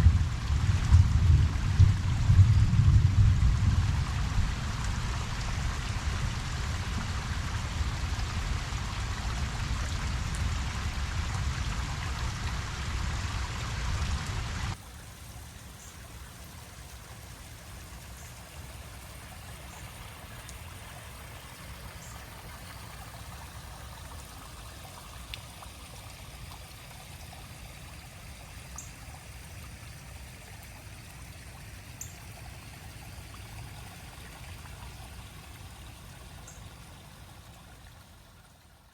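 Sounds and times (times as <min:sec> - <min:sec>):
light rain: 0:00.0 - 0:38.9
running water trickling: 0:00.0 - 0:38.9
faint drip ticks: 0:15.3 - 0:38.6.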